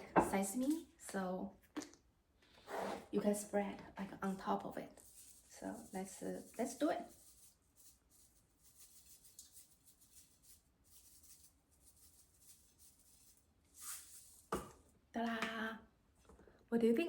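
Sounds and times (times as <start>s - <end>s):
seeds sprinkled rustling: 4.9s - 14.5s.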